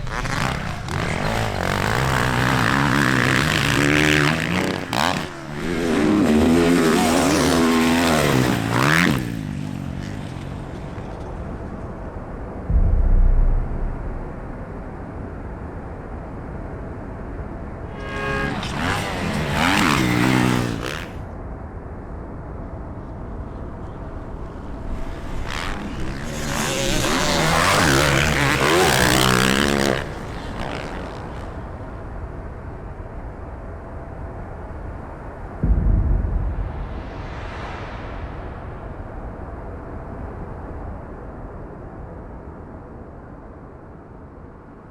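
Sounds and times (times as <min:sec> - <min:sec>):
motocross bikes revving: 0:00.0 - 0:10.9, 0:18.0 - 0:21.2, 0:25.4 - 0:31.6
short low thumps: 0:12.7 - 0:15.0, 0:35.6 - 0:38.4
low background rumble: 0:12.7 - 0:15.7, 0:35.6 - 0:39.4.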